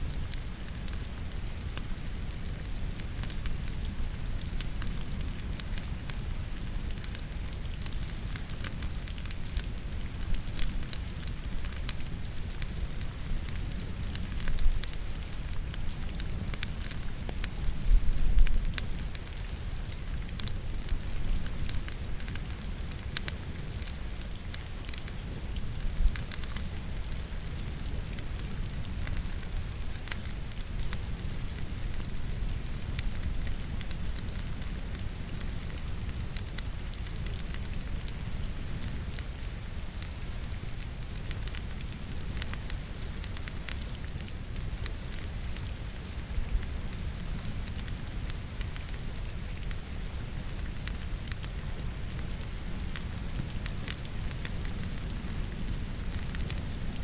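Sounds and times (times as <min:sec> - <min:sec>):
falling rain: 0:00.0 - 0:57.0
fire crackling and popping: 0:00.0 - 0:57.0.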